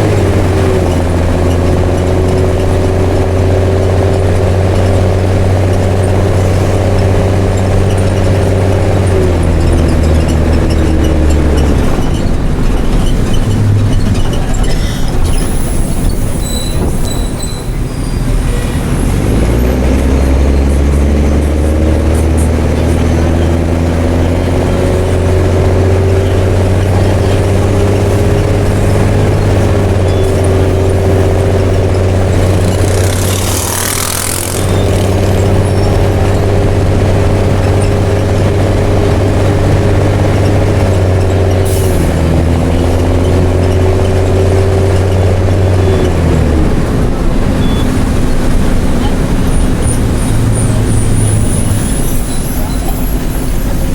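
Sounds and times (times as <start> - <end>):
diesel bus engine: 0.0 - 53.9.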